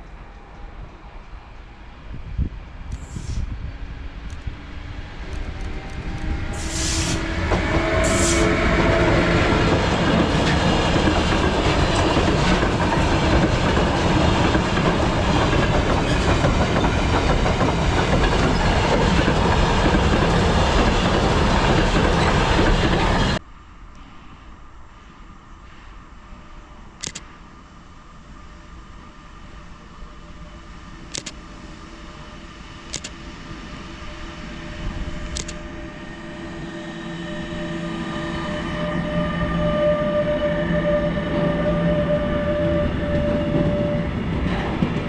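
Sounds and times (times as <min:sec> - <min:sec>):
freight train rumbling over rails: 0:00.0 - 0:23.4, 0:27.5 - 0:45.0.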